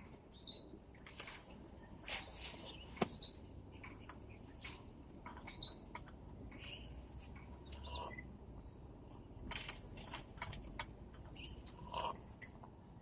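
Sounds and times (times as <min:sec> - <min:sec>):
bird high chirp: 0:00.3 - 0:00.8, 0:02.6 - 0:04.8, 0:05.4 - 0:07.0
small clicks and rustles: 0:00.9 - 0:07.6, 0:09.4 - 0:12.8.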